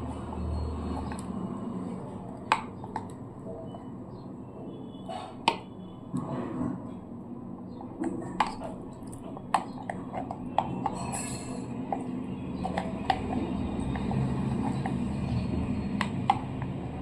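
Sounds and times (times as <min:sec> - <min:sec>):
dishes and utensils clinking: 0:09.4 - 0:13.2.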